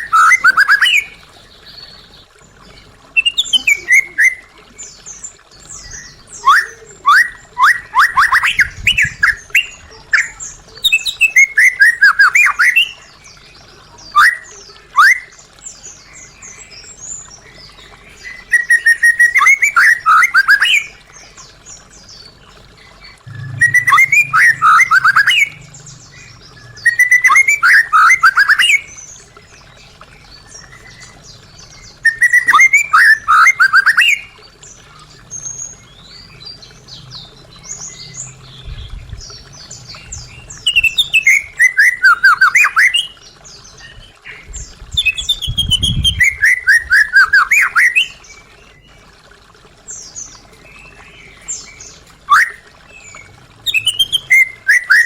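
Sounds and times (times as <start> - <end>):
bird singing whistled phrases: 0.0 - 1.2, 3.2 - 4.5, 5.8 - 13.0, 14.1 - 15.3, 18.3 - 20.9, 23.2 - 29.0, 31.9 - 34.4, 40.6 - 43.2, 45.0 - 48.2, 52.3 - 55.0.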